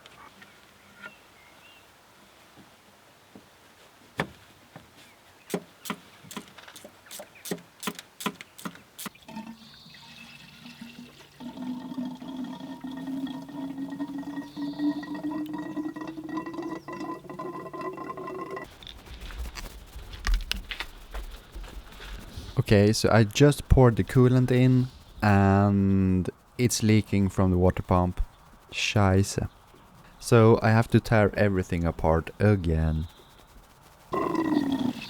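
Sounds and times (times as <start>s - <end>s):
sharp clicks: 5.5s - 9.2s
liquid pouring into a container: 9.2s - 18.2s.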